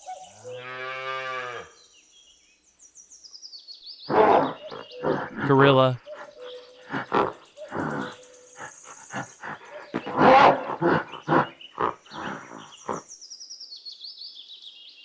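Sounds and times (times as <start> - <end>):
bird chirping: 1.8 - 15.0
gorilla grunting and roaring: 4.1 - 13.0.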